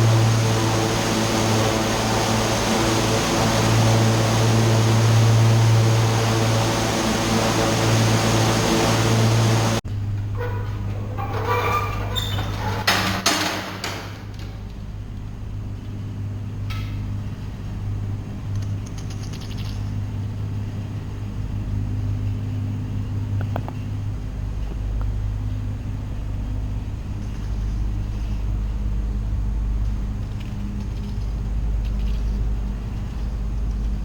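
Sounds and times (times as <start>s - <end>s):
engine running steadily: 0.0s - 34.0s.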